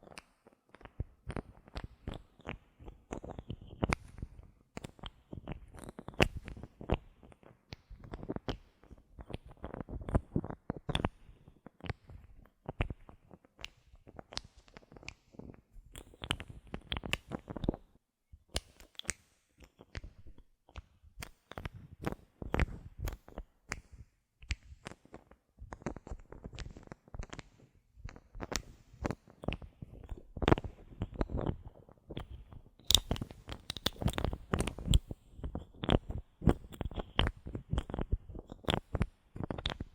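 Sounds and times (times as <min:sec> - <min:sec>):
bottle caps clicking and scratching: 0:32.2 - 0:39.9.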